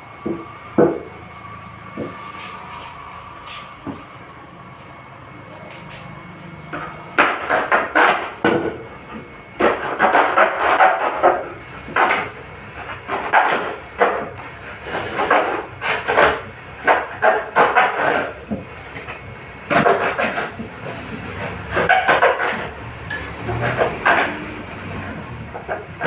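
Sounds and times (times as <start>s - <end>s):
hand scraping and rubbing strokes: 2.0s - 6.1s.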